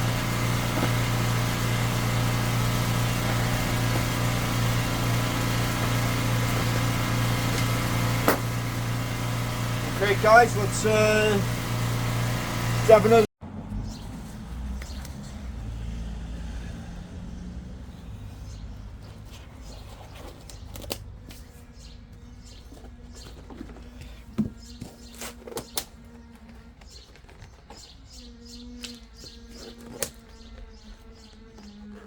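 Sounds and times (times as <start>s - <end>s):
small birds chirping: 0.0s - 11.5s, 13.8s - 15.5s, 17.3s - 32.0s
vehicle low rumble: 0.0s - 24.8s.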